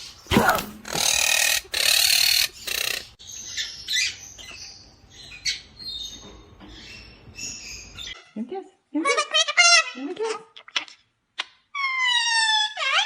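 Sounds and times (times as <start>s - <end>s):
bird harsh calls: 0.0s - 4.2s
bird chirping: 0.0s - 8.2s.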